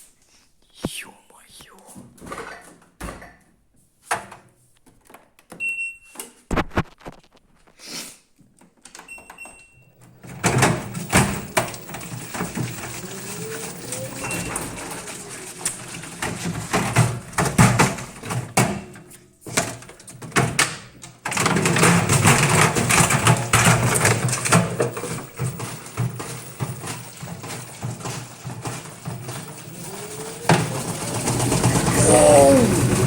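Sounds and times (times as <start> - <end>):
washing machine knocking and rattling: 10.1 - 33.0.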